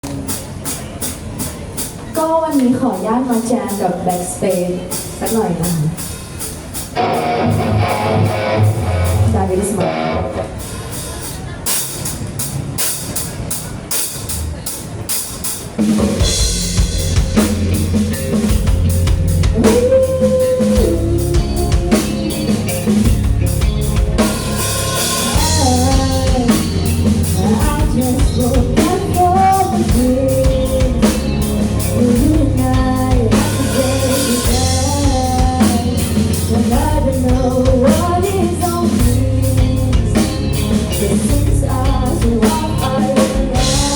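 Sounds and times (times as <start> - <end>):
rock band playing: 2.9 - 43.9
drum hits: 15.6 - 20.0
person singing: 19.5 - 22.8, 25.3 - 43.9.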